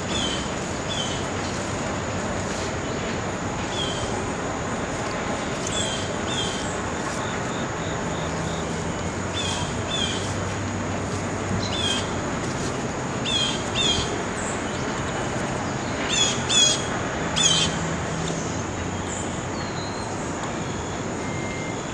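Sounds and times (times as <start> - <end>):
outdoor background noise: 0.0 - 21.9
faint high whine: 18.5 - 21.9.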